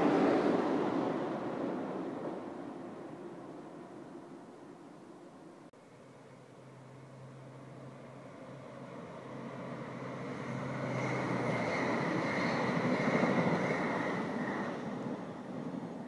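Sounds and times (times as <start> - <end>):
passenger train rumbling past: 0.0 - 5.6, 6.6 - 16.0
steady high whine: 0.0 - 8.6.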